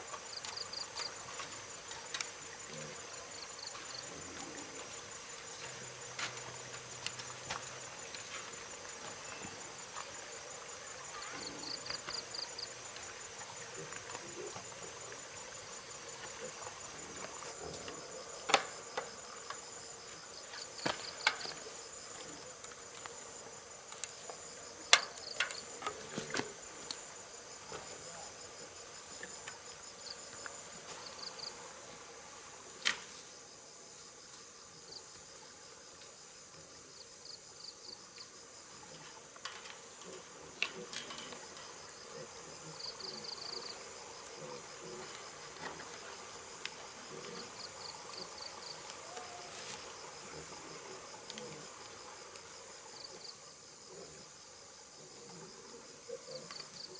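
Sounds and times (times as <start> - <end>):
insects chirring: 0.0 - 56.9.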